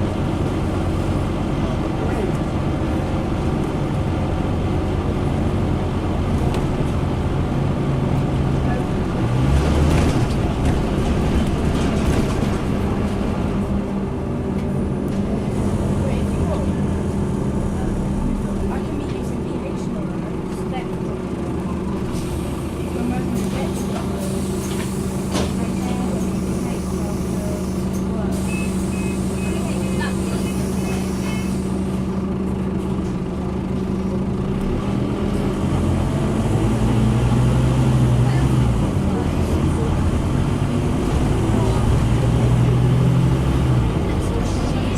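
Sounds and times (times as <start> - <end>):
bus diesel engine running: 0.0 - 44.9
road noise: 0.0 - 44.9.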